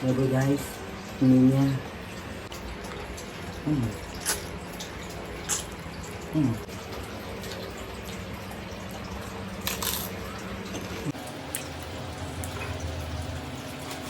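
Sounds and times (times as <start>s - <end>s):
eating and mouth sounds: 3.6s - 4.5s, 5.4s - 6.7s, 9.6s - 10.2s.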